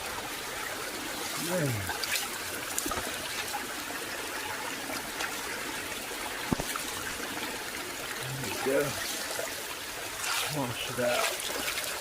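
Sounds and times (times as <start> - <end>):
stream trickling and splashing: 0.0 - 12.0.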